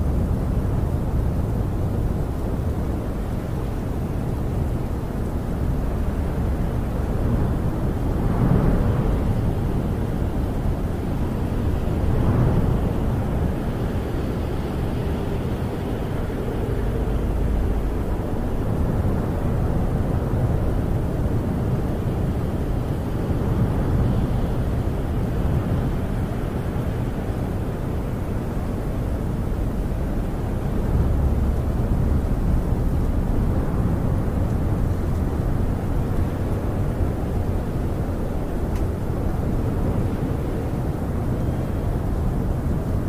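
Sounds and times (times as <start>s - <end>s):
wind howling: 0.0s - 43.0s.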